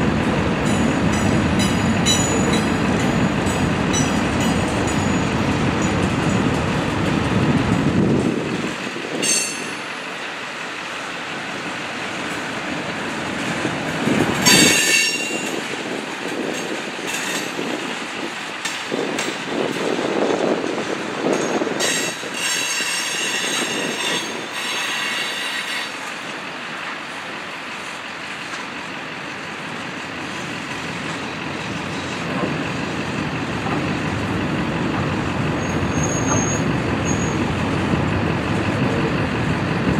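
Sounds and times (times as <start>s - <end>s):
freight train rumbling and clacking: 0.0s - 39.9s
metal wheel squeal: 14.5s - 15.6s, 21.8s - 26.0s, 35.6s - 37.4s.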